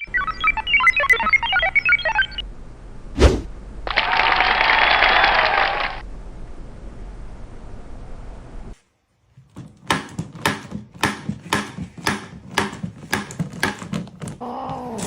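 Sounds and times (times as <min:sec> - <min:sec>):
sharp knocks: 0:09.5 - 0:14.4.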